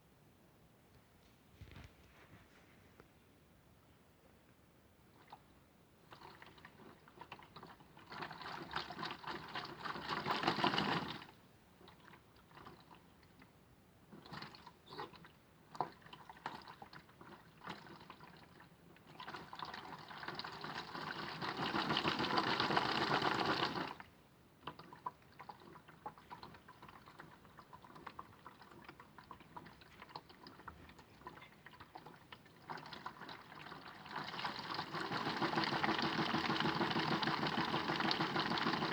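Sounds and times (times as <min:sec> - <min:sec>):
toy washing machine motor: 0:06.2 - 0:11.3, 0:19.0 - 0:24.0, 0:32.6 - 0:38.9.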